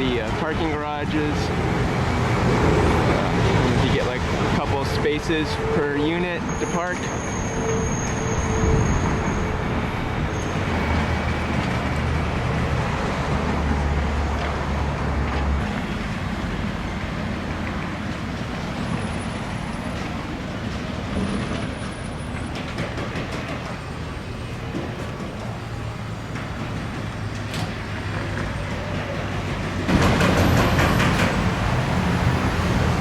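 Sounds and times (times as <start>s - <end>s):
road traffic rush: 0.0s - 33.0s.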